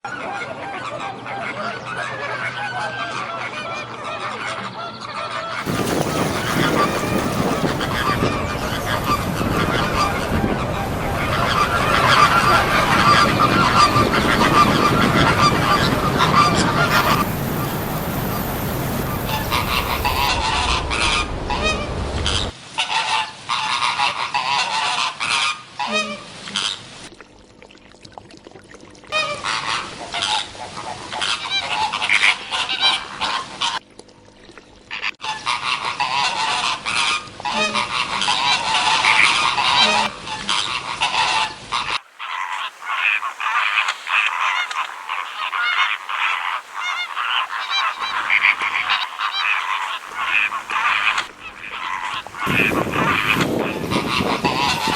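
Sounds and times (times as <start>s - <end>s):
flamingos honking: 2.6s - 22.6s, 35.3s - 54.9s.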